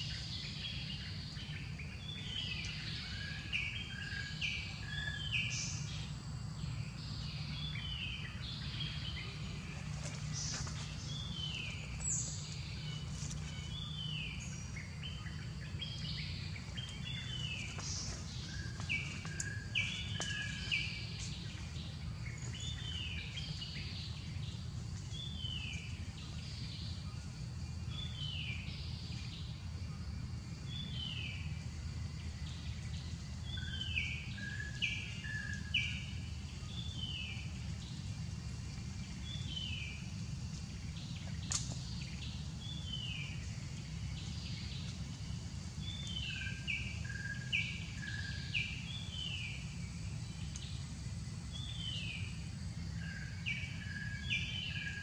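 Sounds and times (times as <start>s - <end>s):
steady low rumble: 0.0s - 54.6s.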